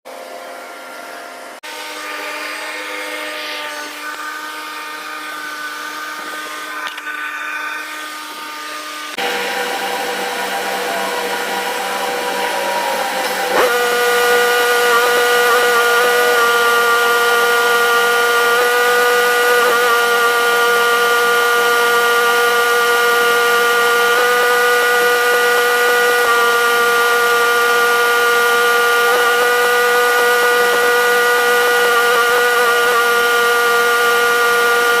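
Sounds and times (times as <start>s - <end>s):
machine whining: 0.1s - 35.0s.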